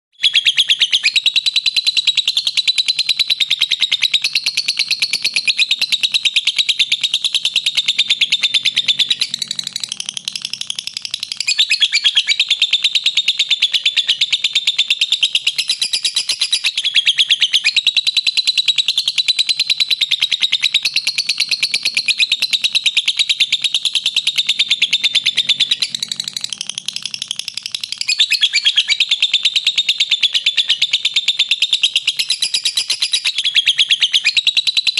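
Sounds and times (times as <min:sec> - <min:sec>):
lovebird chattering: 0:00.2 - 0:34.9.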